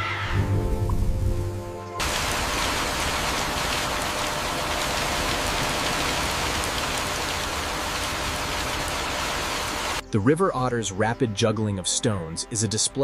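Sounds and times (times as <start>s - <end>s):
heavy rain hissing: 0.5s - 10.0s.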